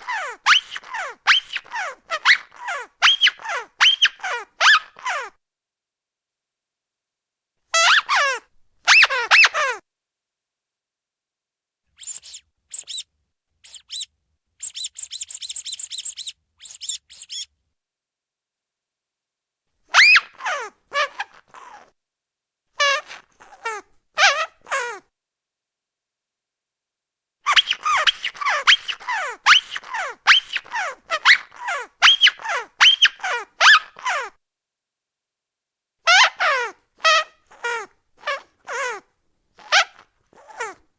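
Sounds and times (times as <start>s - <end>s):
rubber duck squeaking: 0.0s - 5.3s, 7.8s - 9.8s, 12.0s - 17.5s, 19.9s - 21.9s, 22.8s - 25.0s, 27.5s - 34.4s, 36.1s - 40.8s.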